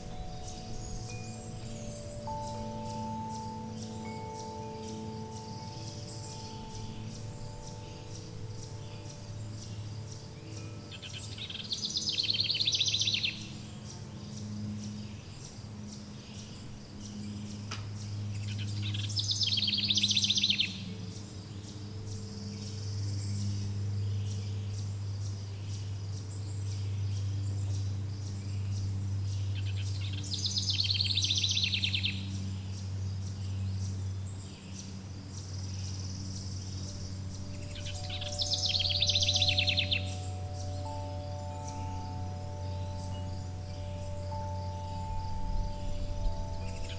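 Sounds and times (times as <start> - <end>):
chime-like tone: 0.0 - 15.3, 36.9 - 46.9
insects chirping: 0.0 - 46.9
low humming tones: 0.0 - 46.9
songbird trilling: 0.0 - 46.9.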